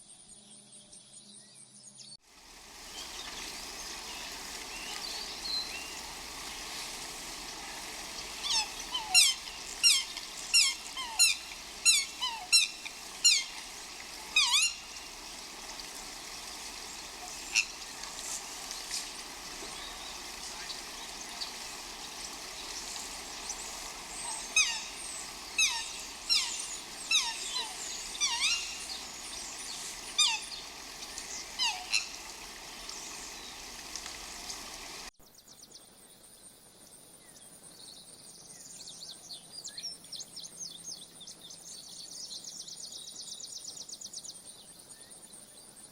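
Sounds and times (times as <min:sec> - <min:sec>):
steady outdoor hiss: 0:00.0 - 0:45.9
animal giving sharp calls: 0:06.3 - 0:19.4, 0:20.2 - 0:32.6.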